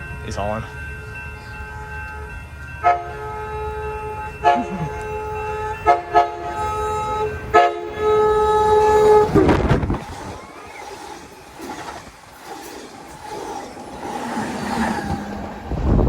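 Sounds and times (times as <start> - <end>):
low rumble of train: 0.0 - 16.0
locomotive air horn blasts: 2.8 - 9.5.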